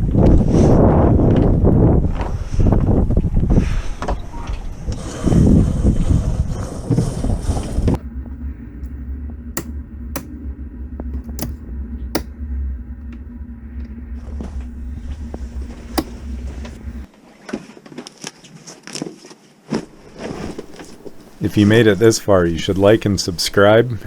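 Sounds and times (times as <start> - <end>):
wind rushing on microphone: 0.0 - 9.4
steady low rumble: 5.3 - 17.1
sharp clicks or knocks: 8.0 - 10.4, 11.0 - 17.1.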